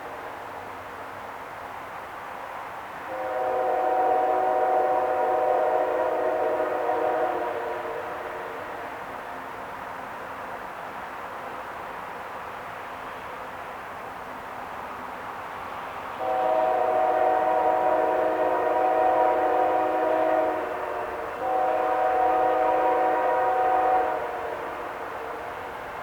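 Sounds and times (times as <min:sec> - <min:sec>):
low rumble of train: 0:00.0 - 0:26.0
locomotive air horn blasts: 0:03.1 - 0:08.9, 0:16.2 - 0:25.0.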